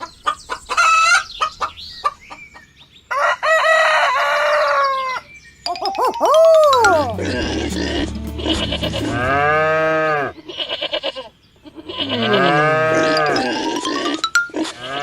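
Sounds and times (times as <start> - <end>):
quavering bleats: 7.2 - 9.7.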